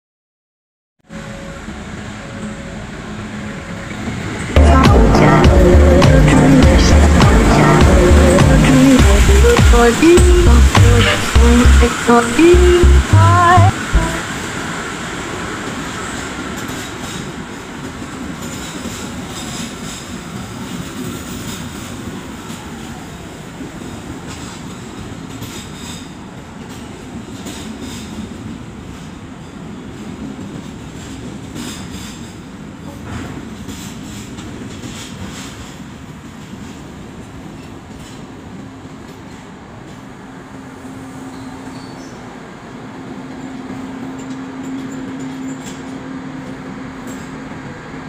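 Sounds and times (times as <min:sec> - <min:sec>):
train wheels rumbling on rails: 0:01.2 - 0:48.0
sharp clicks of train wheels: 0:15.2 - 0:22.7, 0:23.6 - 0:29.3, 0:29.9 - 0:40.6.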